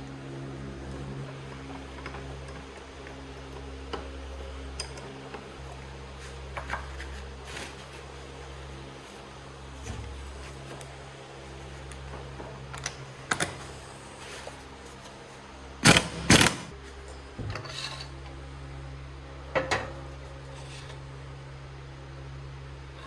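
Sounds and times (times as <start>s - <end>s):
metal tools clicking and clinking: 15.8s - 18.1s.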